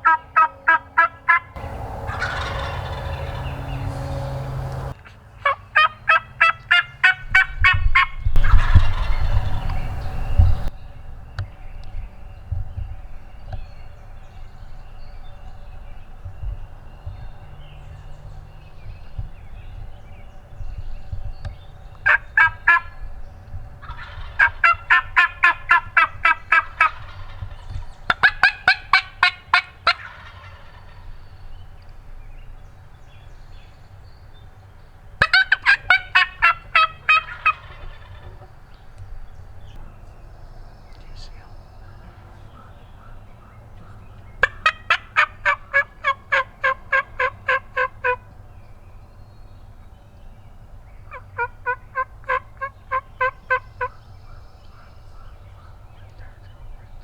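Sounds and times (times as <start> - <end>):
turkey calling: 0.0 - 10.7, 22.0 - 23.0, 23.8 - 31.2, 35.2 - 38.5, 42.4 - 48.3, 51.1 - 54.0.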